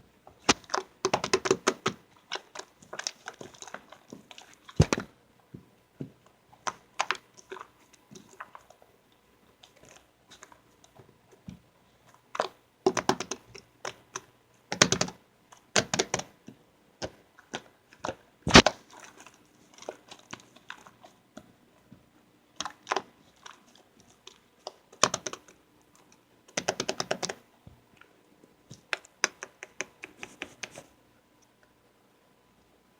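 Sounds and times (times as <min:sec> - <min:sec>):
slime crackling and popping: 0:17.0 - 0:21.1.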